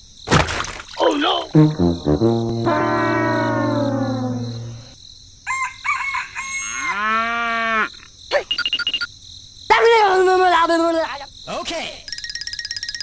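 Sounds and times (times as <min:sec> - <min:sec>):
falling brass-like tone: 0:01.5 - 0:05.0.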